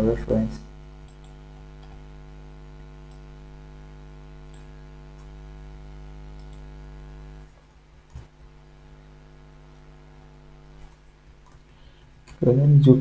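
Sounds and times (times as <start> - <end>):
electrical mains hum: 0.0 - 13.0
faint clicks: 0.8 - 2.1, 3.0 - 3.4, 4.4 - 5.4, 6.3 - 6.8, 10.7 - 12.4.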